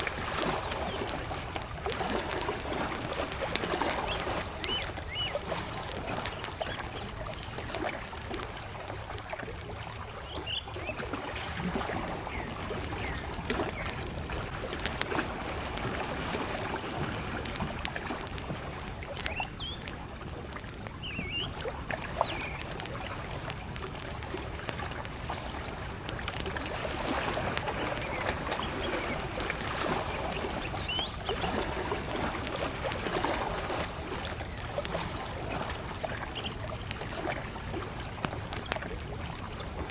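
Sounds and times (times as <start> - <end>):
campfire crackling: 0.0 - 39.9
lake waves lapping at shore: 0.0 - 39.9
distant bird chirps: 0.7 - 1.6, 3.9 - 7.8, 21.0 - 22.7, 30.0 - 31.4, 38.6 - 39.8.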